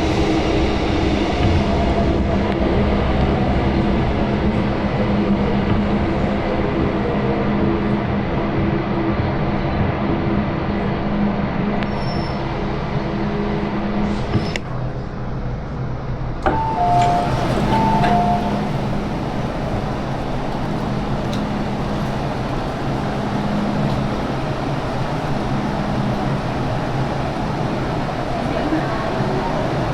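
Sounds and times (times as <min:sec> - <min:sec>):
train rumble and hum: 0:00.0 - 0:29.9
click: 0:16.4 - 0:18.8, 0:20.5 - 0:22.2
two-note onboard chime: 0:16.5 - 0:18.8.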